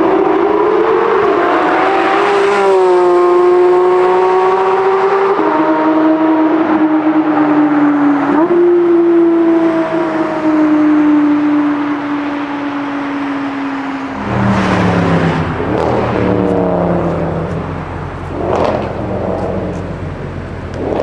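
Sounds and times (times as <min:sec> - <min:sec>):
sports car engine running: 0:14.0 - 0:21.0.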